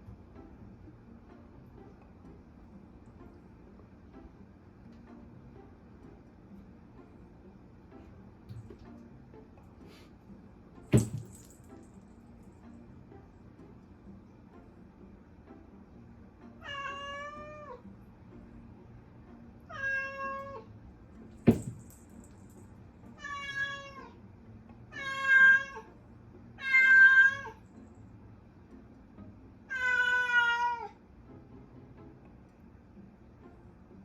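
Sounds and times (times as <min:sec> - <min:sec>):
cat meowing: 0:16.6 - 0:17.8, 0:19.7 - 0:20.7, 0:23.2 - 0:24.2, 0:24.9 - 0:25.9, 0:26.6 - 0:27.6, 0:29.7 - 0:31.0.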